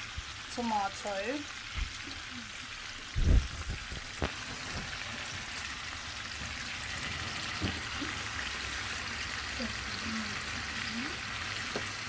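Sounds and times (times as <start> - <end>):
food cooking hiss: 0.0 - 12.0.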